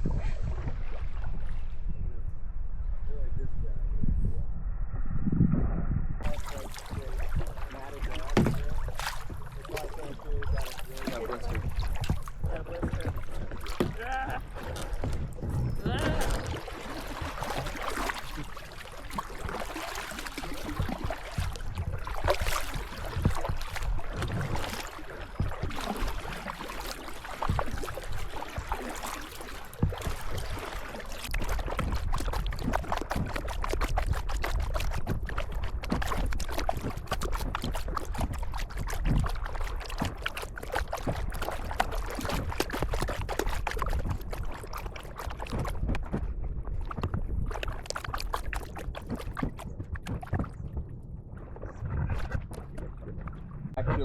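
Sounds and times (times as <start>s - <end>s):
paddles splashing in water: 0.0s - 1.9s, 6.2s - 54.0s
steady low rumble: 0.0s - 19.8s
water trickling off blades: 6.2s - 46.2s.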